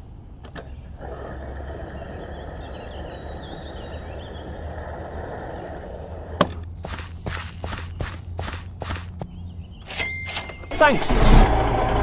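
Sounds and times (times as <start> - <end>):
fuel flowing: 1.0 - 6.6.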